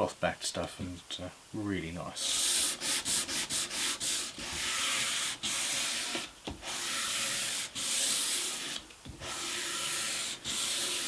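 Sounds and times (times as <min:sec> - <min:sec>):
sandpaper rasping on wood: 0:02.2 - 0:11.0.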